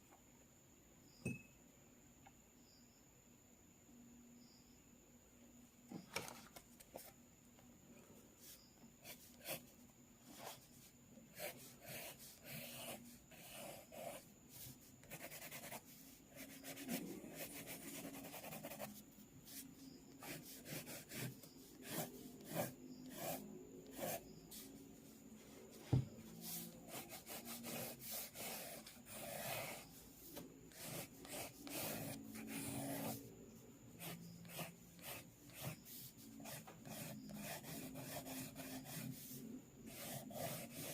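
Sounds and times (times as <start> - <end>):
pencil sketching on paper: 9.0 - 9.7, 11.3 - 25.1, 26.4 - 30.0, 30.7 - 33.2, 33.9 - 40.9.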